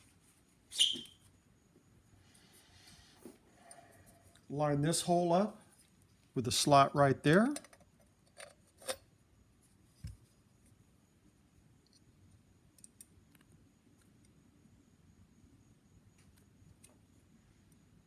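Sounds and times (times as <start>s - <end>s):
faint small clicks: 12.8s - 14.4s.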